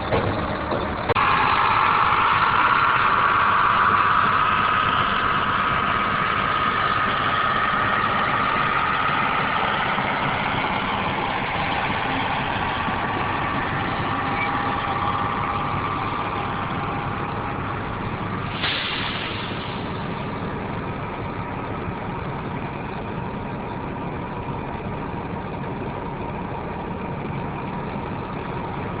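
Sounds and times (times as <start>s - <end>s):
heavy machinery engine running: 0.0s - 29.0s
high whine: 1.1s - 29.0s.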